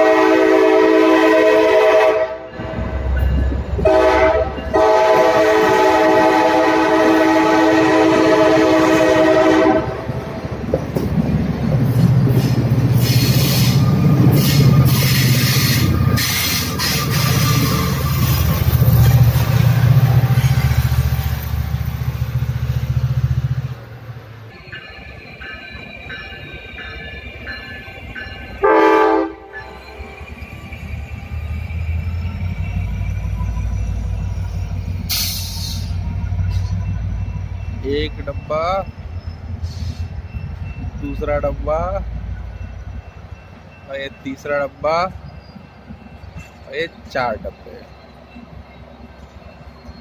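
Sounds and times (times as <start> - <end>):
locomotive horn blasts: 0.0 - 2.6, 3.8 - 10.1, 28.6 - 30.0
locomotive engine rumble: 0.0 - 50.0
train wheels clattering on rails: 10.2 - 23.7, 42.4 - 50.0.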